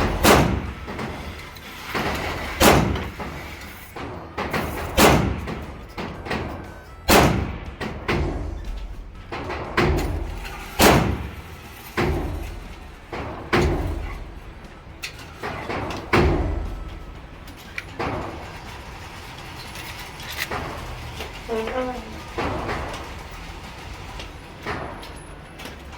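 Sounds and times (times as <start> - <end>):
gunshots with reverberation: 0.0 - 1.0, 2.3 - 3.3, 4.6 - 5.8, 7.1 - 11.4.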